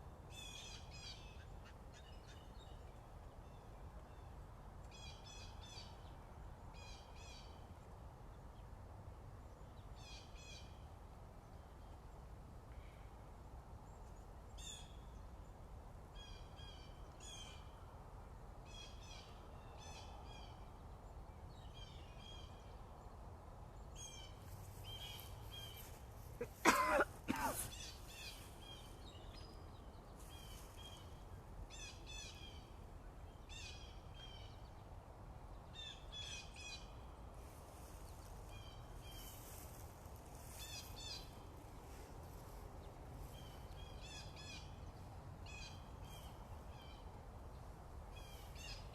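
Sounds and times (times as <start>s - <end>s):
small birds chirping: 23.8s - 34.8s.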